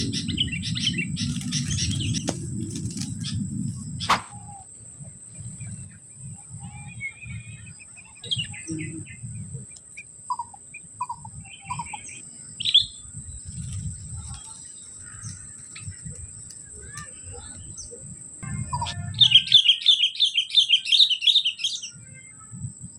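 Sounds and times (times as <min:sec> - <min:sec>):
bulbuls chirping: 0:00.0 - 0:21.9
sharp click: 0:04.1 - 0:04.3.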